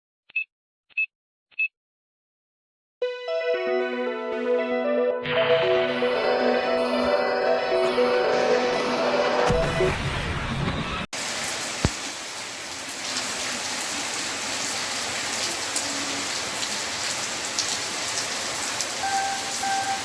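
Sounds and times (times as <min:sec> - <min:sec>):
steady rain falling: 0:11.2 - 0:20.0.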